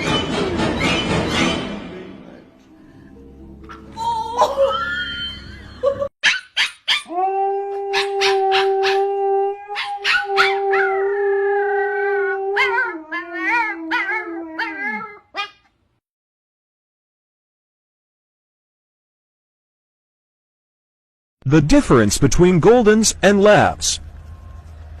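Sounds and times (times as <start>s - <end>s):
dog howling: 6.9s - 15.5s.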